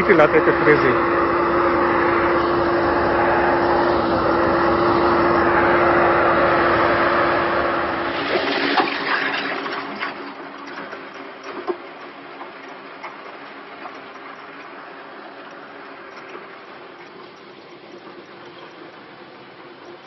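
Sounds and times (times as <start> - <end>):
sharp clicks and knocks: 9.7 - 19.2.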